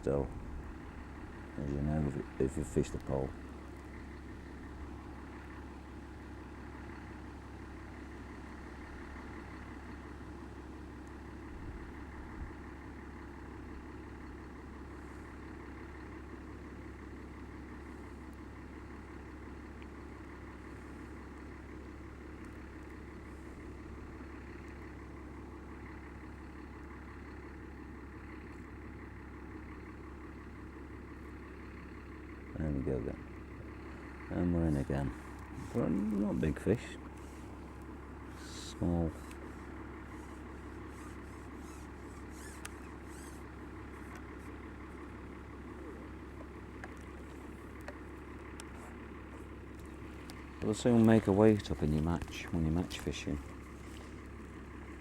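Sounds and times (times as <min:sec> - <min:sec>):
aerator motor humming: 0:32.6 - 0:55.0.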